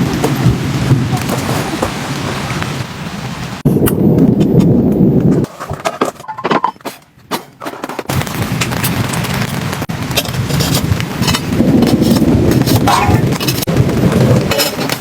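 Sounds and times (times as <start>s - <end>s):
rain: 0.0s - 5.2s, 8.0s - 15.0s
low thunder rumble: 8.1s - 15.0s.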